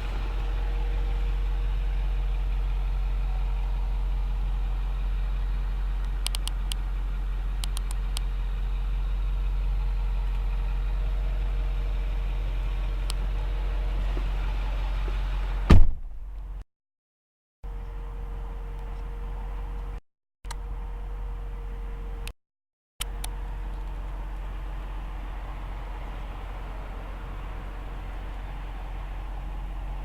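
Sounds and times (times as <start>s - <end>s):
truck engine idling: 0.0s - 16.6s, 23.0s - 30.0s
sharp clicks: 6.0s - 6.8s, 7.6s - 8.3s
loud thump: 15.7s - 16.3s.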